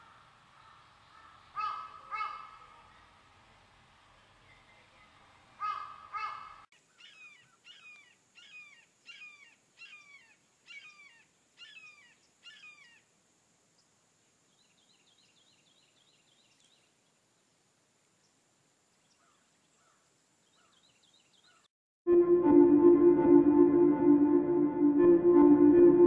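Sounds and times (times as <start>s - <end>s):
loud bird calls: 0.0s - 2.6s, 5.6s - 13.0s
downward-sweeping bird notes: 22.1s - 26.0s.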